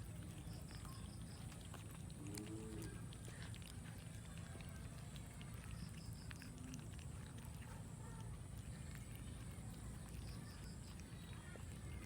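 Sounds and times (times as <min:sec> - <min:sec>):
cats chewing food: 0:00.0 - 0:12.0.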